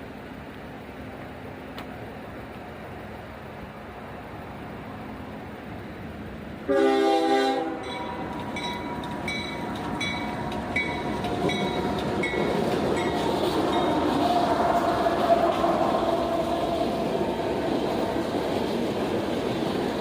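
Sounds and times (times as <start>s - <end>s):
rumble of approaching train: 0.0s - 20.0s
train horn blast: 6.7s - 9.0s
bell dinging: 7.8s - 13.2s.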